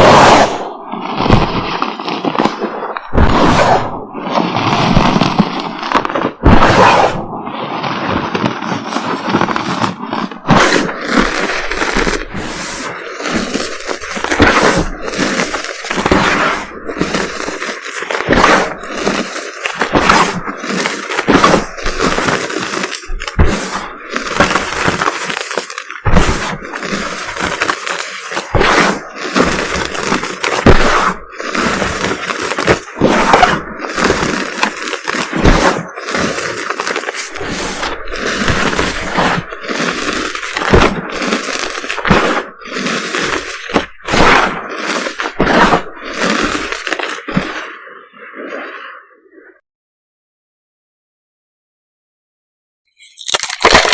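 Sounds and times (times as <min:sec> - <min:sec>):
chalk crunching by hand: 0:09.5 - 0:46.9, 0:53.0 - 0:53.9.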